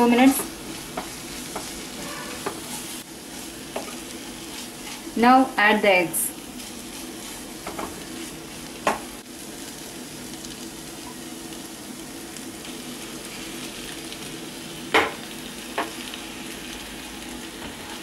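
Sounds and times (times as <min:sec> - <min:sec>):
onions sizzling in a frying pan: 0:00.0 - 0:18.0
spatula stirring: 0:00.2 - 0:05.2, 0:06.4 - 0:09.0.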